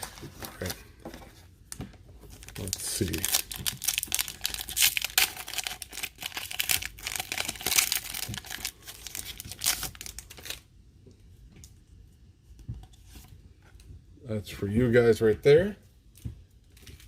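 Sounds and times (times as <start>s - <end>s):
foil wrapper tearing and crinkling: 2.3s - 10.6s.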